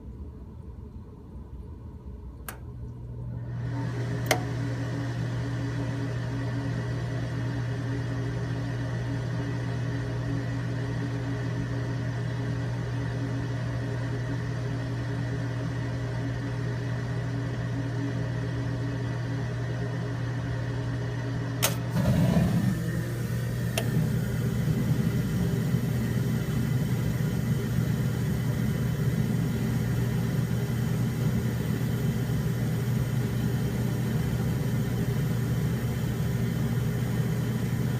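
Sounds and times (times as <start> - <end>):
gas burner rumbling: 2.4 - 37.9
blower motor humming: 2.5 - 37.9
sharp click: 21.6 - 21.9.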